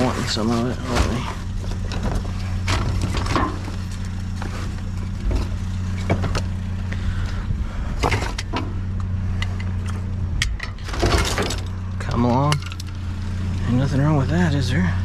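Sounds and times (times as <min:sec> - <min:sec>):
scrap metal clanking: 0:00.0 - 0:06.5, 0:09.4 - 0:11.8
vehicle engine idling: 0:00.0 - 0:15.0.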